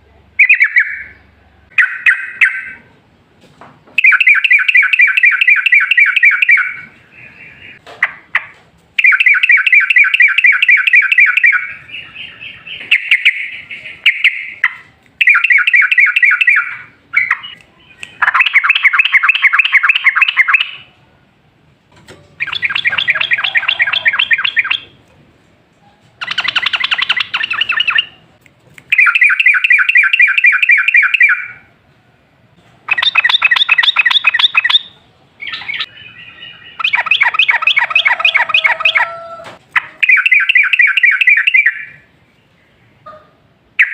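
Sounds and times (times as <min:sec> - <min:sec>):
bird singing chattering trills: 0:22.4 - 0:25.0, 0:26.2 - 0:28.2, 0:32.9 - 0:39.2.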